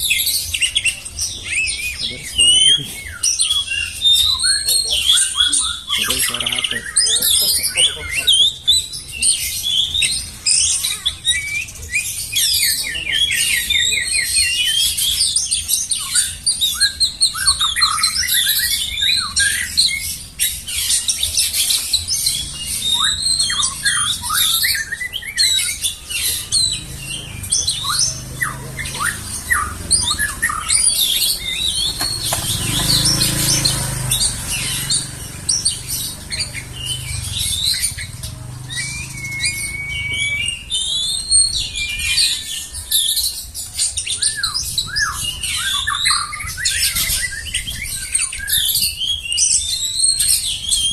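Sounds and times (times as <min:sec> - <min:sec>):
songbird singing: 0:00.0 - 0:50.9.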